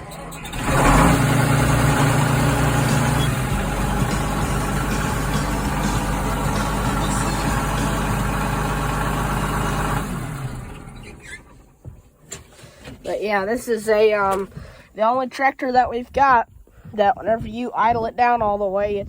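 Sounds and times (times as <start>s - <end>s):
diesel tractor engine idling: 0.0s - 11.9s.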